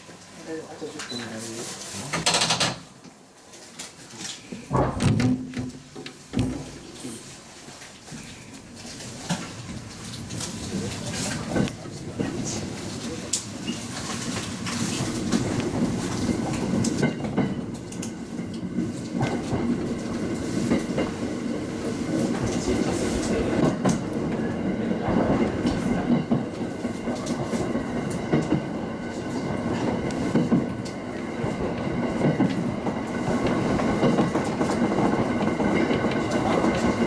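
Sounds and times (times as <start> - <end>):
rumble of train wheels on rails: 0.0 - 37.0
clicks and knocks from track: 13.3 - 21.2.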